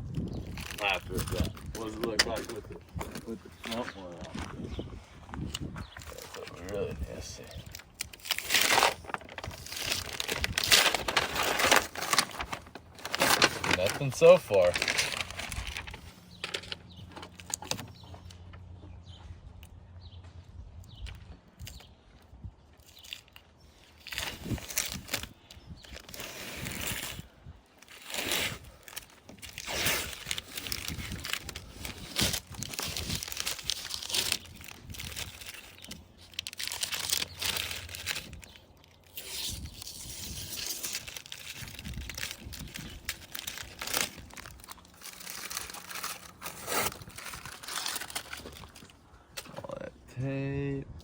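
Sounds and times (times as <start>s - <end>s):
tape crinkling: 0.1s - 4.3s, 5.4s - 18.5s, 22.8s - 49.5s
masking tape tearing: 7.6s - 16.0s, 27.8s - 48.8s.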